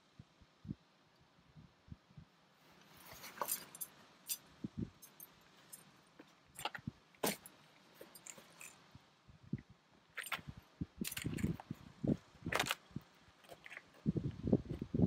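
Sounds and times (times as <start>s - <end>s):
short rustles: 2.6s - 8.9s.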